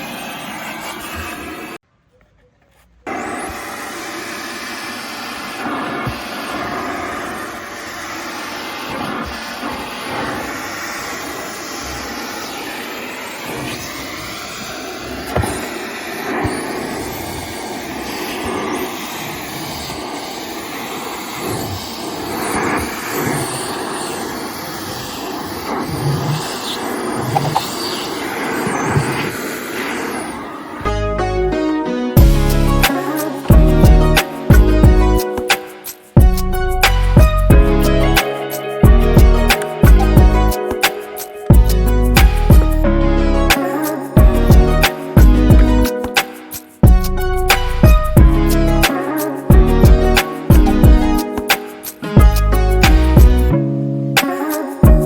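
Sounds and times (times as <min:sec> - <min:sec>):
vacuum cleaner running: 0:00.0 - 0:01.8, 0:03.1 - 0:36.8, 0:37.5 - 0:42.9.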